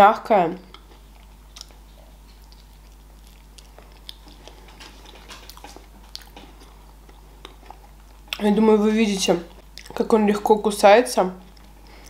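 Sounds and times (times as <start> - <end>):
wet mouth clicks and smacks: 0.7 - 6.7.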